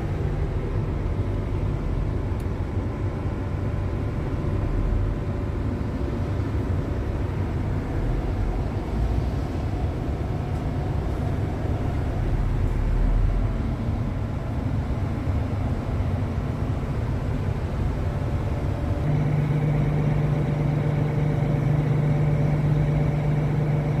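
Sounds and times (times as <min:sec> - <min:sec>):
excavator diesel engine running: 0:07.2 - 0:24.0.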